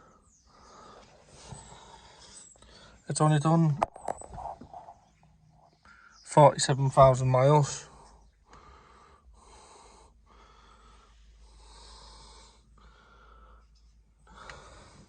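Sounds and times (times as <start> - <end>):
person breathing close to microphone: 0.0 - 3.1, 7.9 - 15.0.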